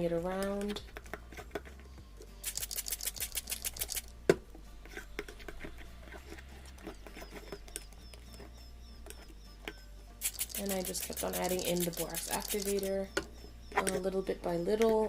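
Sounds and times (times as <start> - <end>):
slime squelching and scraping: 10.2 - 13.0.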